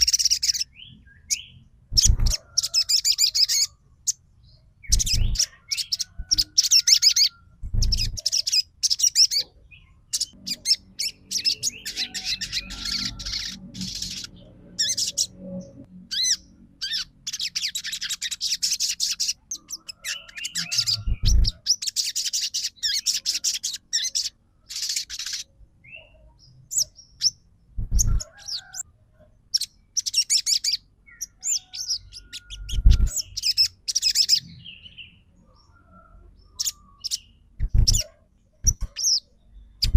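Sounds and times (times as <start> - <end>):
high-pitched bird chirps: 0.0 - 28.8, 29.5 - 35.1, 36.5 - 39.9
low thumps: 27.8 - 28.2.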